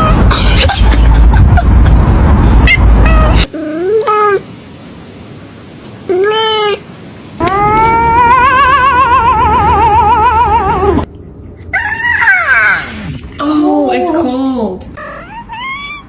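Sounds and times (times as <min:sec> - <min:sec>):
cat meowing: 0:02.6 - 0:04.4.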